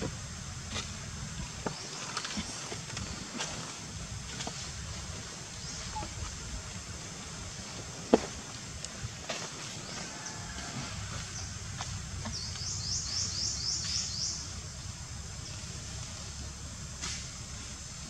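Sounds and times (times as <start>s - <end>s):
bird chirping: 12.2s - 14.6s.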